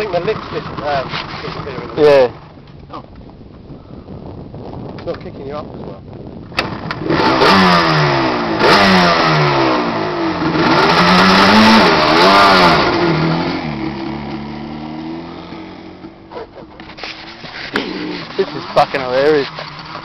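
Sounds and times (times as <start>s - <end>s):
quad bike engine revving: 0.0s - 2.4s, 6.5s - 20.0s.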